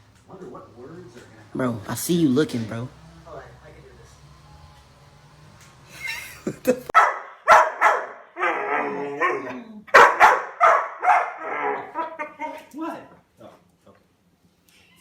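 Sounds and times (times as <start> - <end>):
dog barking and yipping: 7.0 - 12.1.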